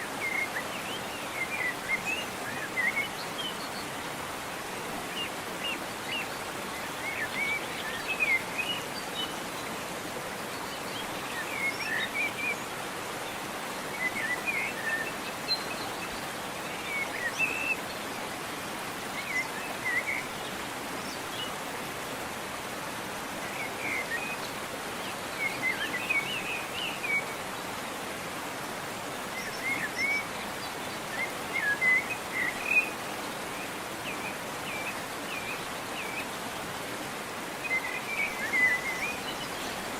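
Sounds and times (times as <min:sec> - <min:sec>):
waterfall rushing: 0:00.0 - 0:39.9
small birds chirping: 0:29.2 - 0:39.9.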